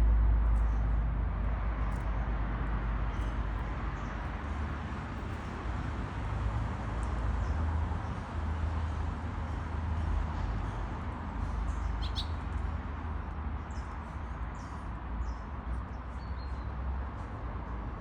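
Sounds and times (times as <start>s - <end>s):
short high bird chirps: 12.0s - 12.4s.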